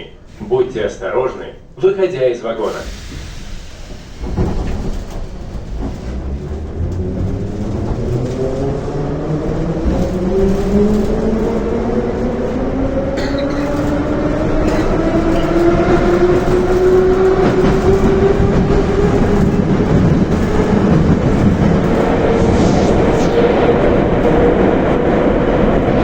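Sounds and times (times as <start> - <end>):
wheel and rail rumble: 2.7 - 26.0.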